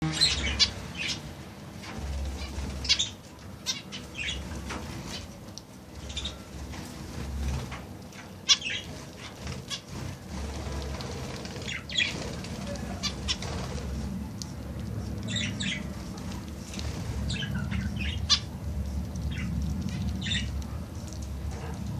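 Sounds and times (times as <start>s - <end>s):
birds chirping: 0.0s - 21.9s
birds fluttering wings: 1.8s - 3.6s, 4.3s - 18.4s.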